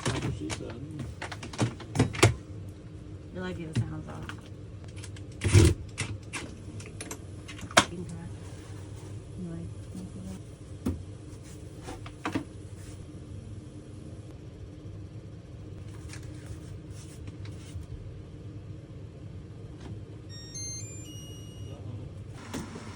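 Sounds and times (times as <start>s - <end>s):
low mechanical hum: 0.0s - 22.9s
rising electronic beep tones: 20.3s - 21.8s.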